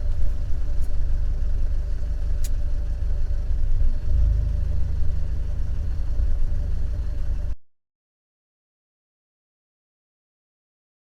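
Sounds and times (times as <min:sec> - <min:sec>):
car engine idling roughly: 0:00.0 - 0:07.6.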